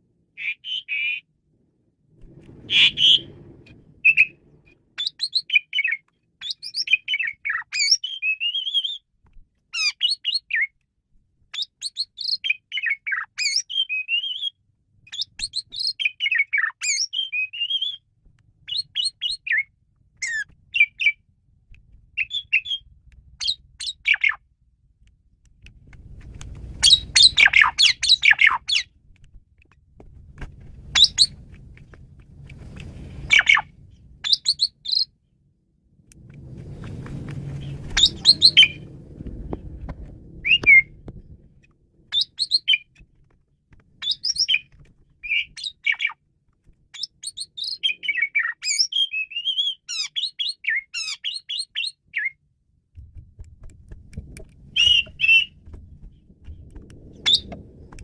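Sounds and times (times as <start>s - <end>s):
low rumble: 1.5s - 5.0s, 24.5s - 34.3s, 35.5s - 42.1s, 53.0s - 58.0s
starling singing: 2.7s - 3.4s, 4.0s - 4.4s, 5.0s - 9.0s, 22.2s - 22.8s, 26.8s - 28.9s, 30.9s - 31.4s, 33.2s - 35.1s, 37.6s - 38.9s, 40.4s - 41.0s, 44.0s - 46.2s, 54.7s - 55.6s, 57.3s - 57.5s.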